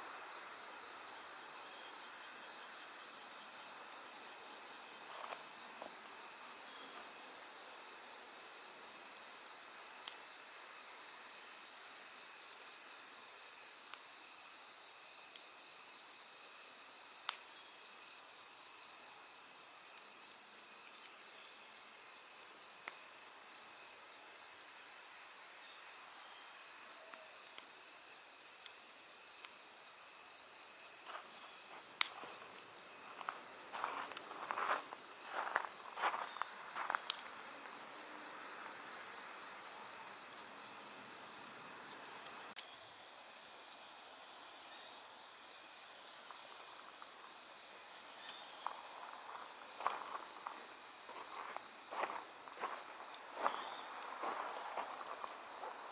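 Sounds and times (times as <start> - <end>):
crickets trilling: 0.0 - 55.9
insect chirp: 0.0 - 55.9
wood fire crackling: 31.0 - 39.0, 51.2 - 55.9.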